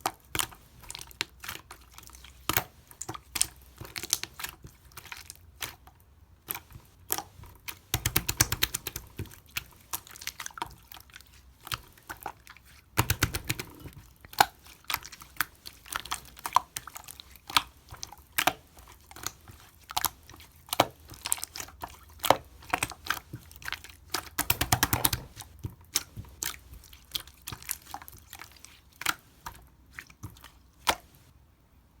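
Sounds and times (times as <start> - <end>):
sharp clicks and taps: 24.4 - 26.3.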